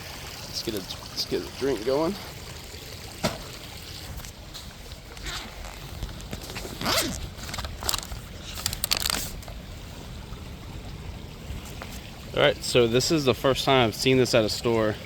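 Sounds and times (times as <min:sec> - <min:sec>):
backpack zipper and rustling: 0:05.2 - 0:09.3.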